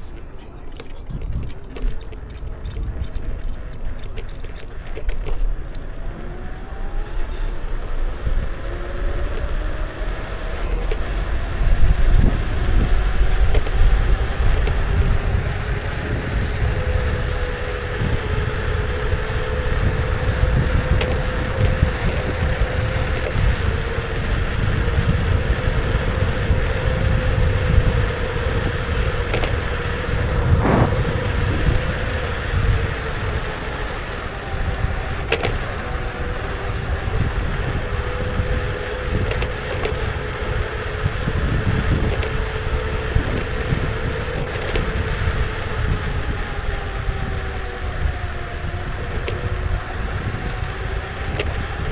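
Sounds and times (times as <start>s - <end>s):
electric scooter motor whine: 0.0s - 51.9s
low wind: 0.0s - 51.9s
road rumble: 0.0s - 51.9s.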